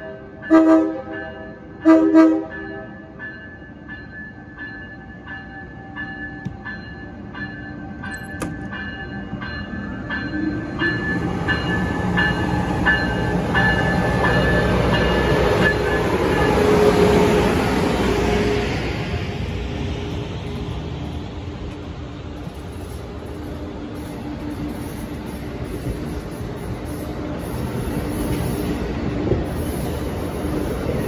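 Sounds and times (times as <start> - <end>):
train bell ringing: 0.0 - 17.4
train rumble: 0.0 - 31.0.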